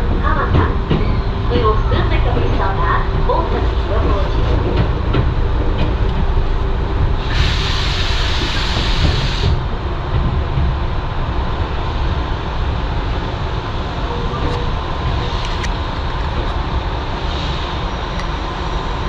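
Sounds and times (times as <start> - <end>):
train rumbling: 0.0 - 19.0
air hiss: 7.2 - 9.6.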